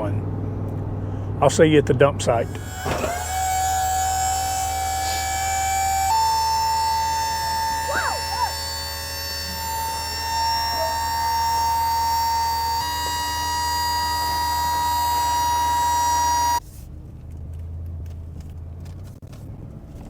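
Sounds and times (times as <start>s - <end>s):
hydraulic pump motor whining: 2.4s - 16.6s.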